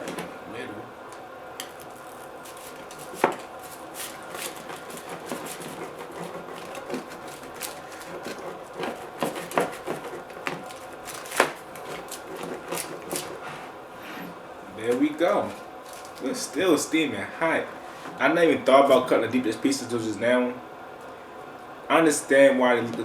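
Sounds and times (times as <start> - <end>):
knife scraping through pizza: 1.8 - 14.4.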